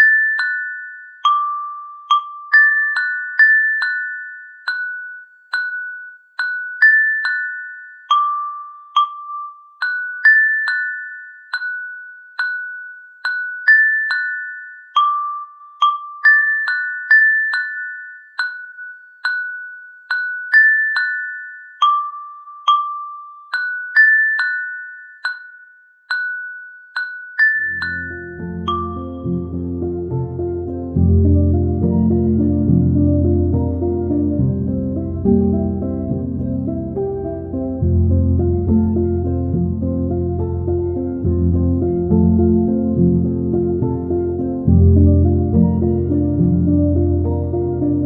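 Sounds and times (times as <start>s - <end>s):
glockenspiel-like bell melody: 0.0s - 30.8s.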